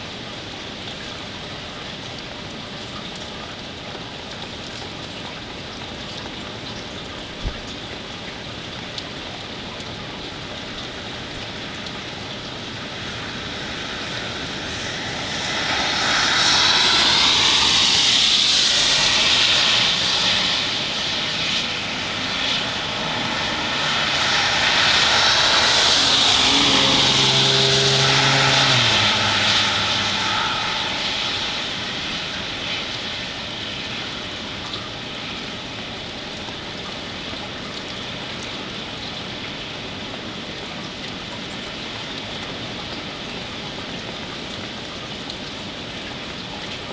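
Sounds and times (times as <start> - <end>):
steady rain hiss: 0.0 - 46.9
vehicles passing: 19.9 - 32.9.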